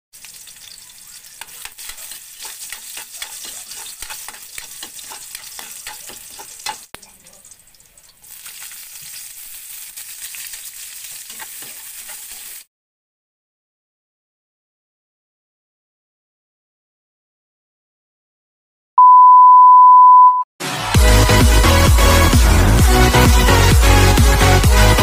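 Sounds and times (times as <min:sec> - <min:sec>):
garlic sizzling in hot oil: 0:00.1 - 0:12.7
metal spatula scraping a pan: 0:00.2 - 0:07.0, 0:08.2 - 0:12.6.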